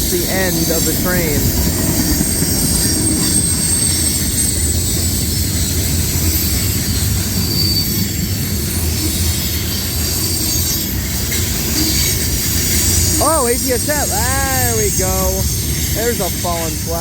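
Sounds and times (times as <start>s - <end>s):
train wheels rumbling on rail: 0.0s - 17.0s
high-pitched ringing: 12.6s - 17.0s.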